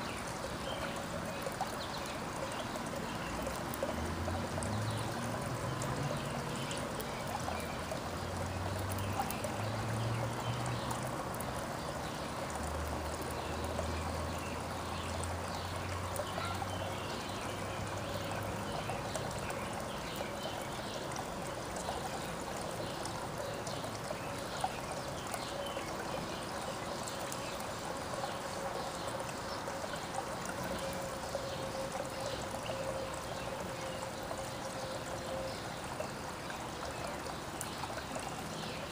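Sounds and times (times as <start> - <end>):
trickle of running water: 0.0 - 38.9
faint bird chirps: 16.3 - 16.6.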